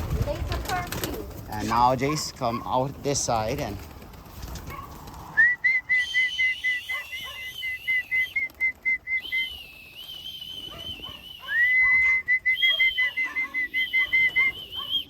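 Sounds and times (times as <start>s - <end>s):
trilling whistle: 5.4s - 15.0s.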